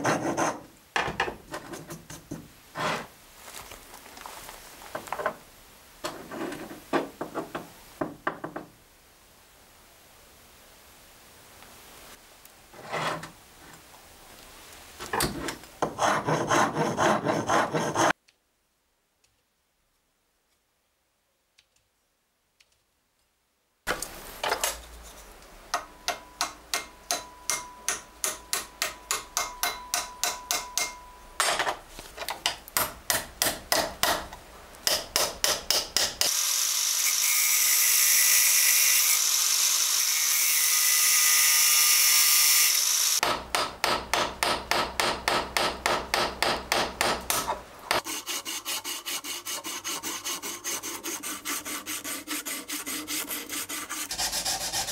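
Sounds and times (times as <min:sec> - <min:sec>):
loud steady hiss: 0:06.8 - 0:15.8, 0:23.9 - 0:52.2
sandpaper rubbing on wood: 0:16.0 - 0:18.2, 0:48.0 - 0:54.9.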